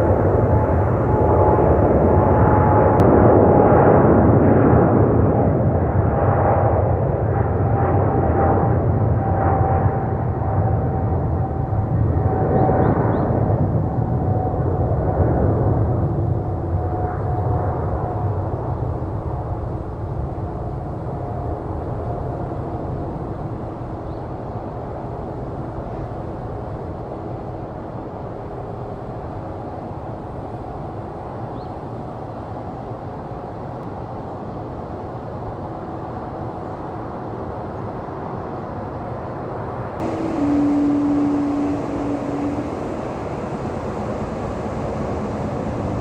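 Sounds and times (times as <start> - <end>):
jet engines rumbling: 0.0 - 16.8, 39.8 - 46.0
airliner engines humming: 0.0 - 28.0, 34.8 - 46.0.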